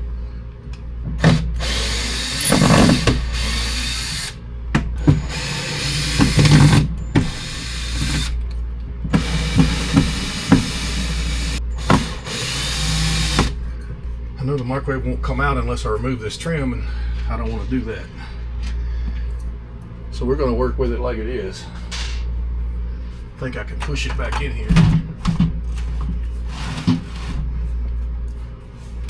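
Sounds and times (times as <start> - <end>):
cordless drill running: 1.2 - 4.4, 5.0 - 8.4, 9.1 - 13.6.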